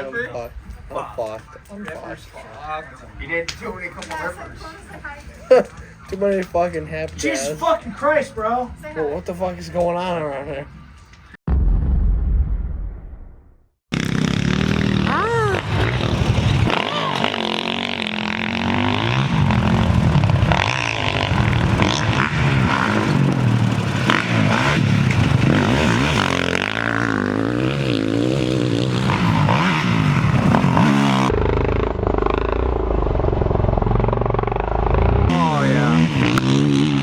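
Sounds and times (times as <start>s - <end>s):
pit bike engines revving: 13.9s - 37.0s.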